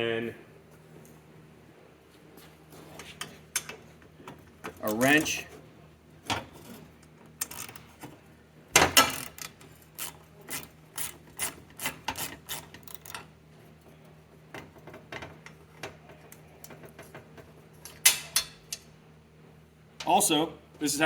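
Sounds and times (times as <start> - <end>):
socket wrench ratcheting: 9.0 - 13.2.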